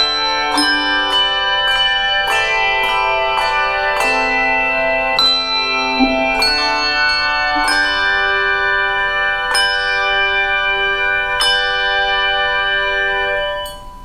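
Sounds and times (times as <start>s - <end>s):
bells ringing chords: 0.0s - 14.0s.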